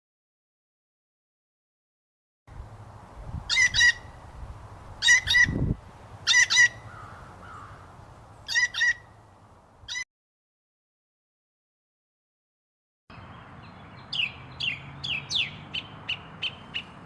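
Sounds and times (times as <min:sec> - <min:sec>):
bird calling in double notes: 0:03.5 - 0:04.2, 0:05.0 - 0:09.2.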